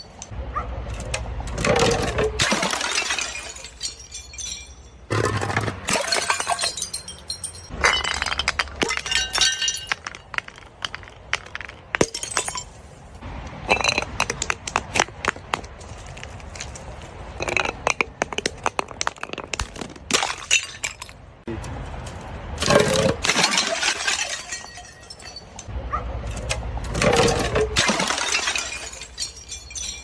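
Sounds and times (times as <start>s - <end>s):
glass bottles smashing: 1.6s - 13.0s, 13.6s - 14.6s, 15.8s - 21.3s, 22.6s - 25.7s, 26.9s - 30.0s
glass shards tinkling and crunching: 1.9s - 5.1s, 5.9s - 12.9s, 23.2s - 25.7s, 27.2s - 30.0s.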